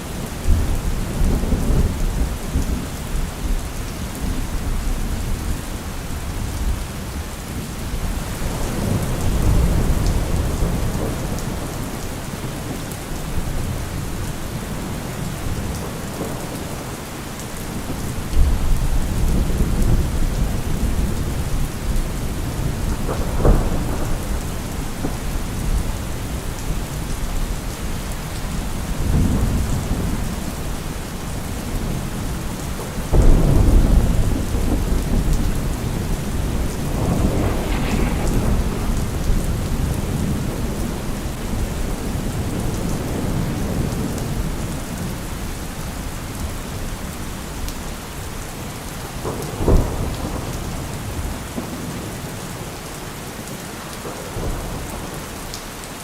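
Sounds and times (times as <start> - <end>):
steady rain: 0.0 - 56.0
thunder rumbling: 7.9 - 46.0
sharp thunderclap: 17.8 - 26.8, 33.1 - 44.5.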